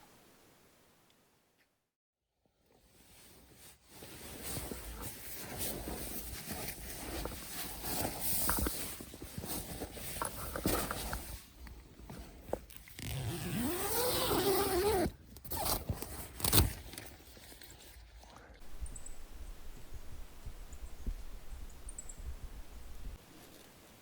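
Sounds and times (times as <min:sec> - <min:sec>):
zipper being pulled: 0:12.6 - 0:16.8.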